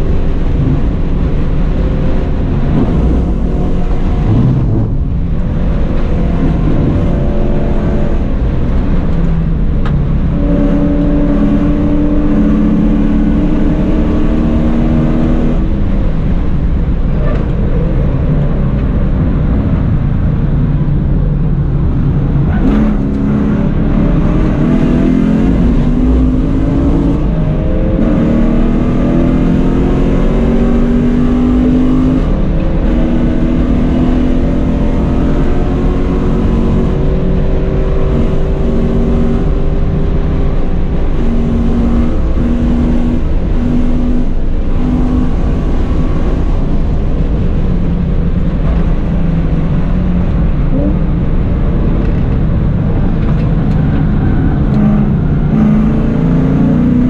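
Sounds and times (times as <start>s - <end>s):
car engine revving at full throttle: 0.0s - 57.0s
road and wind rumble: 0.0s - 57.0s.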